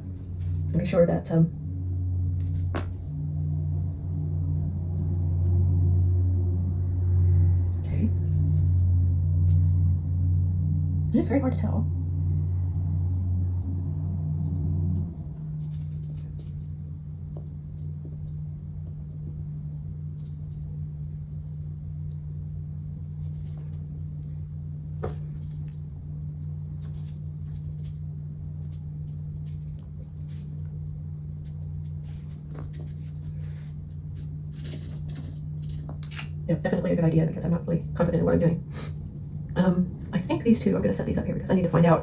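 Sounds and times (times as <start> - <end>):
steady low hum: 0.0 - 42.0
clicks of small parts handled: 34.6 - 36.4.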